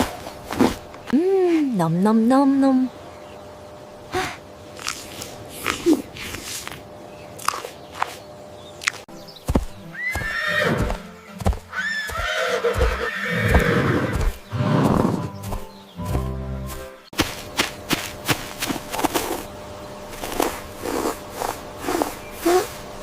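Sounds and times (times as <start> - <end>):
horse whinnying: 10.0 - 11.0, 11.7 - 15.2.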